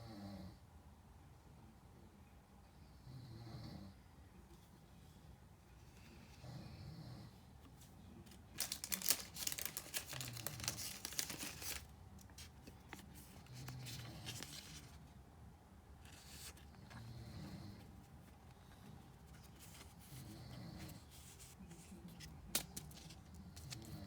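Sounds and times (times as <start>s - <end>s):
foil wrapper crinkling and tearing: 8.4s - 15.0s.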